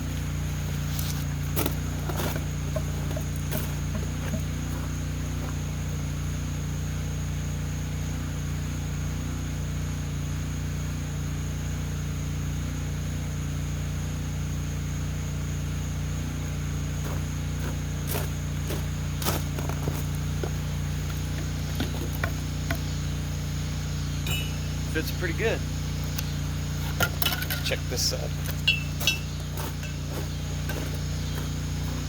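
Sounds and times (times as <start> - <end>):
faint high whine: 0.0 - 32.0
low mechanical hum: 0.0 - 32.0
sharp knocks: 24.2 - 24.8.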